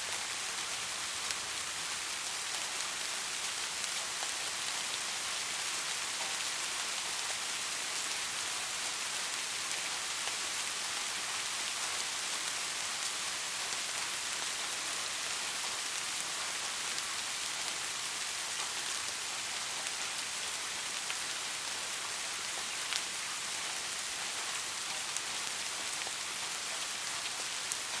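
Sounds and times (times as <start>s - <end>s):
steady rain hissing: 0.0s - 28.0s.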